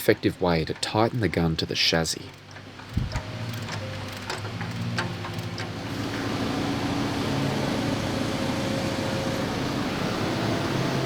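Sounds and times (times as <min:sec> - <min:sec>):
sharp metallic clicks: 0:00.0 - 0:05.8
vehicle engine running: 0:02.9 - 0:11.0.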